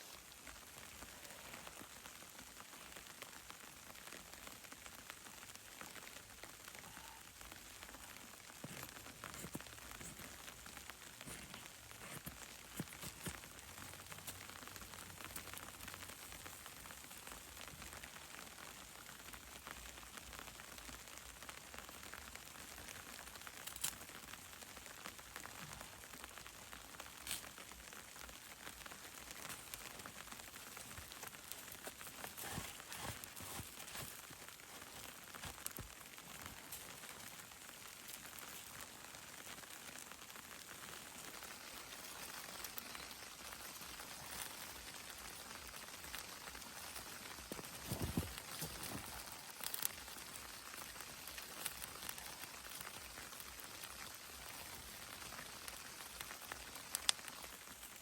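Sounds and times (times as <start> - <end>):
patter of precipitation: 0.0 - 58.0
sleet pattering on surface: 41.5 - 57.3.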